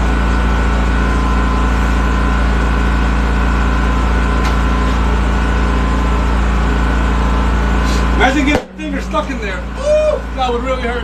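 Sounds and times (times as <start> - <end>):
small gas engine running: 0.0 - 11.0
air hissing into tire: 7.8 - 8.2.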